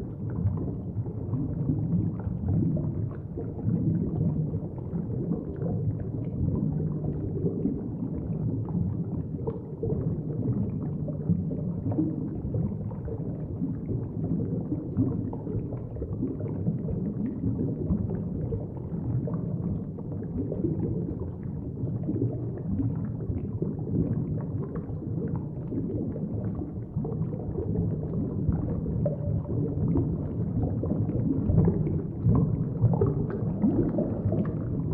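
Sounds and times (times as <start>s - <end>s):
underwater rumbling wash: 0.0s - 34.9s.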